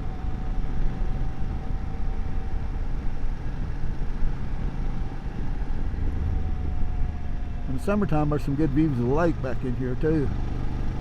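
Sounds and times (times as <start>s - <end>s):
motorcycle engine cruising: 0.0s - 11.0s
wind rush: 3.6s - 7.8s.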